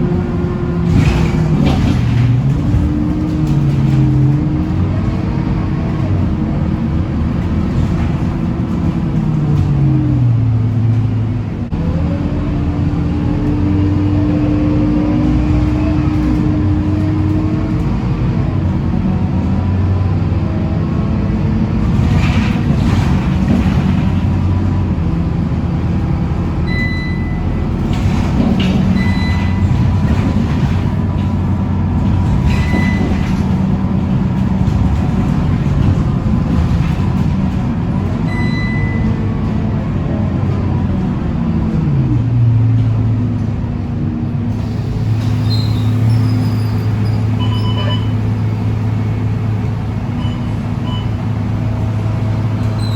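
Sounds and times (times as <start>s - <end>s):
bus diesel engine running: 0.0s - 52.9s
road and body rattle: 0.0s - 52.9s
short high beeps: 26.7s - 27.4s, 38.3s - 39.1s.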